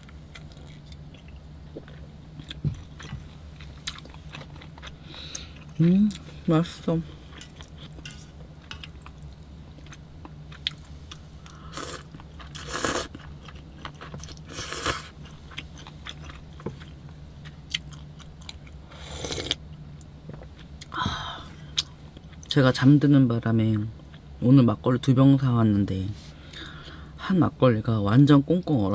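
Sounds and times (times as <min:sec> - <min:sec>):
person chewing: 0:00.0 - 0:06.3, 0:07.3 - 0:19.6
steady low hum: 0:00.0 - 0:28.9
noodle slurps: 0:11.8 - 0:13.2.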